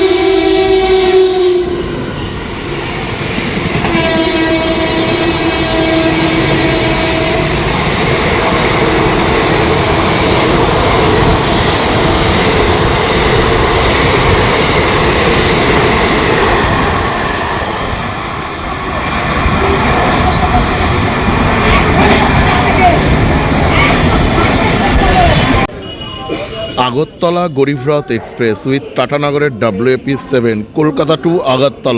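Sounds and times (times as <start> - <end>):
train passing rushing noise: 0.0 - 31.9
train horn two-pitch note: 3.9 - 7.5.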